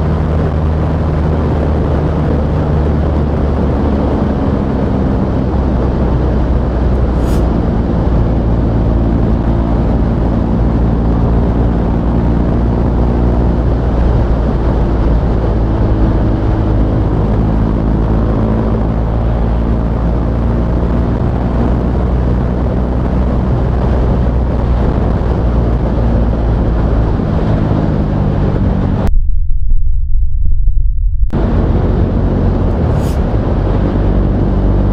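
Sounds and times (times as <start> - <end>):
loud low rumble: 0.0 - 11.7, 24.6 - 34.9.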